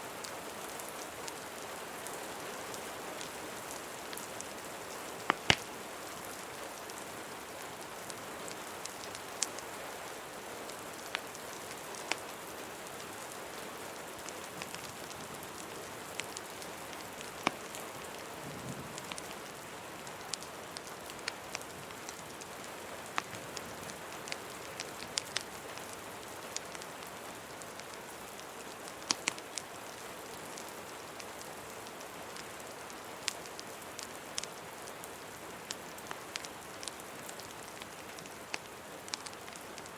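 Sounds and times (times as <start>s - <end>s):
steady rain: 0.0s - 39.9s
fireplace crackling and popping: 2.6s - 39.9s.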